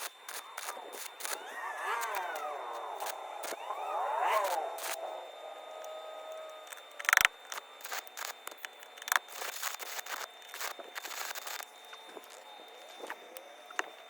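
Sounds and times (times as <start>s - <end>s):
loud buzzy burst: 0.0s - 6.2s.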